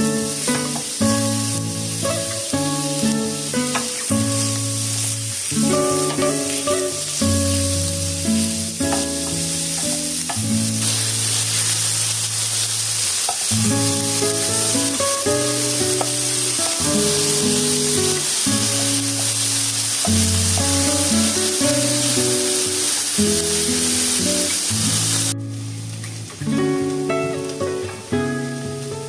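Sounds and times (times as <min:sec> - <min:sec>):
food sizzling in a pan: 0:00.0 - 0:29.0.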